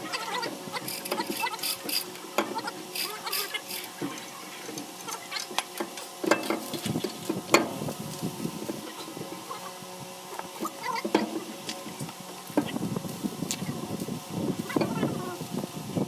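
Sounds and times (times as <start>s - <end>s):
tools and metal parts clinking: 0.4s - 7.7s.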